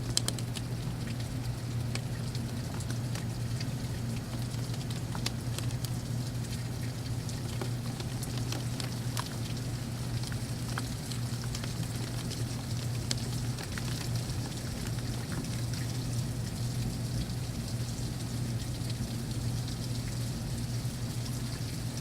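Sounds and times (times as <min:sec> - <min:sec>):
heavy rain falling: 0:00.0 - 0:17.4
raindrops spattering on surfaces: 0:00.0 - 0:22.0
steady low hum: 0:00.0 - 0:22.0.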